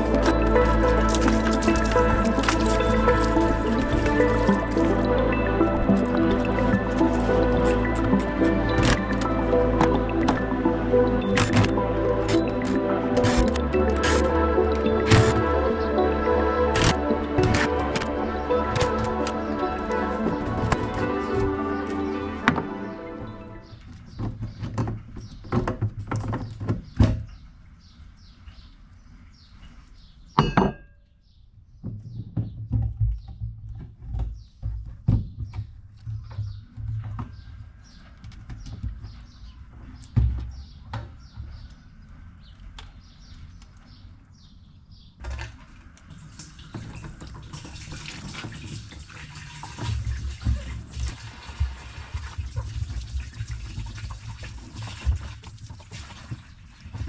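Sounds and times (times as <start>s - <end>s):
water running over tank: 0.0s - 22.8s, 46.1s - 57.0s.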